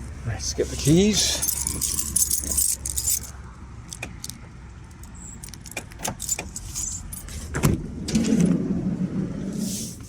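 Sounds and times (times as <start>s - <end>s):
keys jangling: 1.2s - 3.3s, 3.9s - 7.4s.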